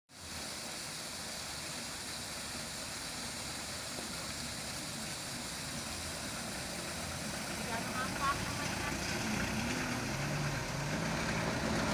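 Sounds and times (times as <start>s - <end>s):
truck engine running: 5.4s - 11.9s.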